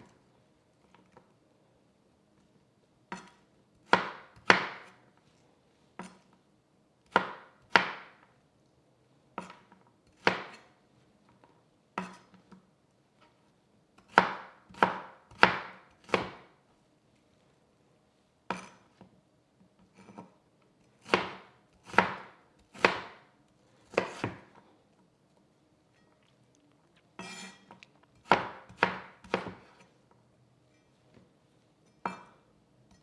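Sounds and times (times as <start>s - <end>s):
knife chopping on cutting board: 3.1s - 5.0s, 7.1s - 8.2s, 9.4s - 10.7s, 14.0s - 16.5s, 21.0s - 23.3s, 23.9s - 24.6s, 28.2s - 29.9s, 32.1s - 32.4s
knife scraping cutting board: 23.8s - 24.4s, 27.2s - 30.0s.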